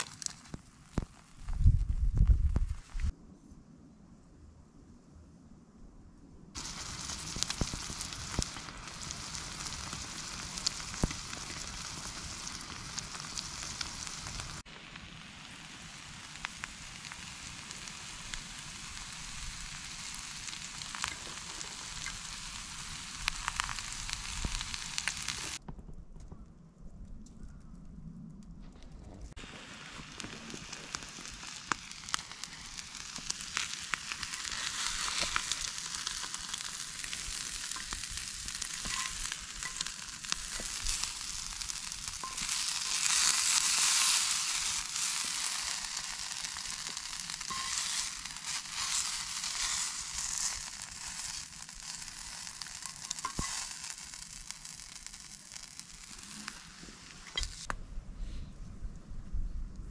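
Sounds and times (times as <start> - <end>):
food sizzling in a pan: 6.6 - 25.6, 29.4 - 57.7.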